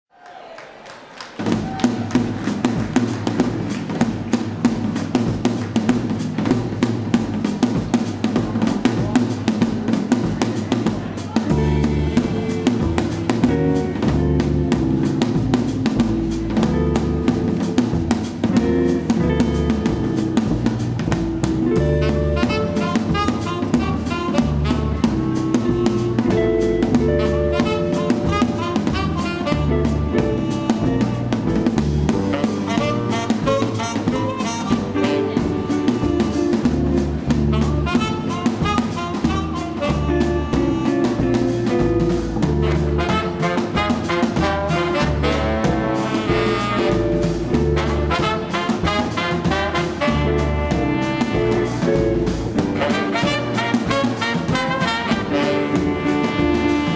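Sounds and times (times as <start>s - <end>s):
drum kit beat: 1.4s - 56.9s
swing jazz band playing: 1.5s - 56.9s
brass horns playing tune: 11.5s - 56.9s.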